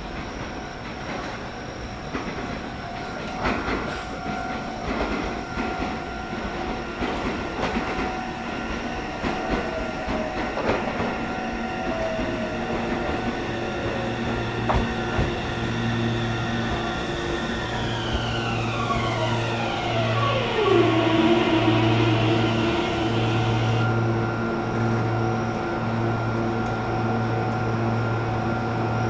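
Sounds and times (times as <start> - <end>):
train wheels clacking: 0.0 - 20.7
motor whine: 13.5 - 28.0.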